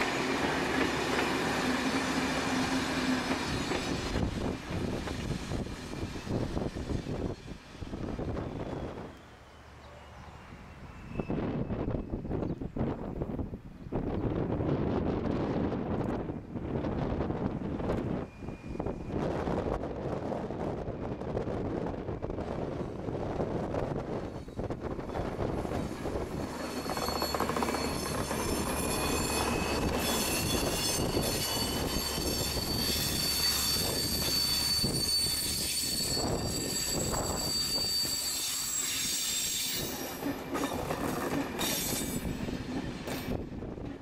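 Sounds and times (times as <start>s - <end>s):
steel wheels squealing: 0.0s - 12.2s, 18.1s - 19.5s, 24.3s - 43.4s.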